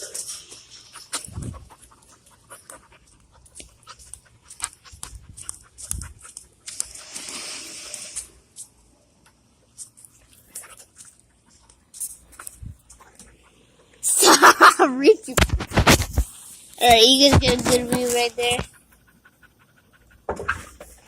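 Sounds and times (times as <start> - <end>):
dog panting: 0.0 - 7.0, 17.6 - 21.0
clicks and scuffs: 0.0 - 13.6, 15.3 - 18.8
hissing rush: 6.7 - 8.4.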